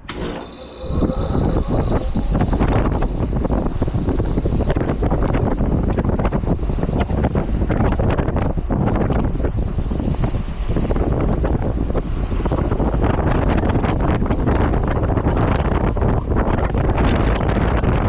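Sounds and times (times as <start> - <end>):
heat pump running: 0.0 - 13.1
wind buffeting microphone: 0.8 - 18.0.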